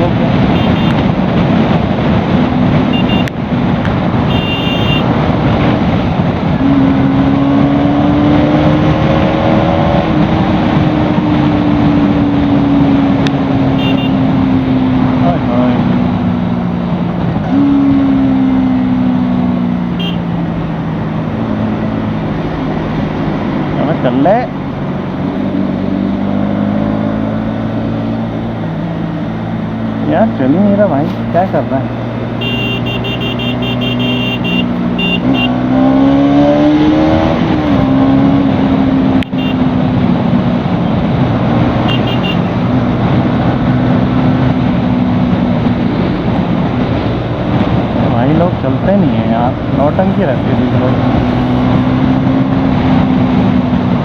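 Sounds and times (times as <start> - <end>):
motorcycle engine running: 0.0 - 5.1, 12.0 - 15.2, 30.6 - 35.7, 37.6 - 43.1
wind rush: 0.0 - 18.0, 34.4 - 54.0.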